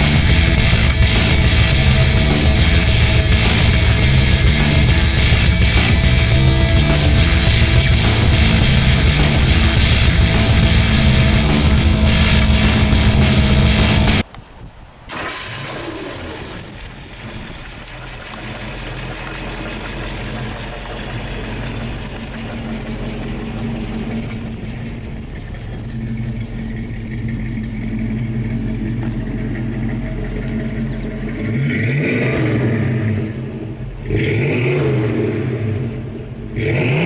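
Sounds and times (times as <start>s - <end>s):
heavy rock music: 0.0s - 14.2s
car engine starting and idling: 0.0s - 37.0s.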